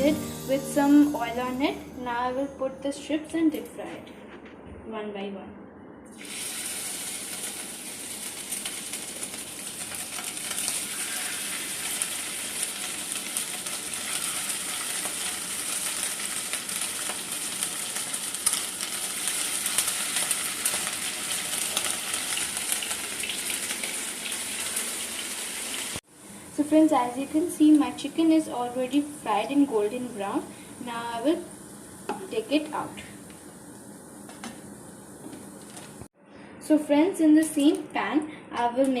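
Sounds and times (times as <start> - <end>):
chicken deep frying in oil: 6.1 - 26.0.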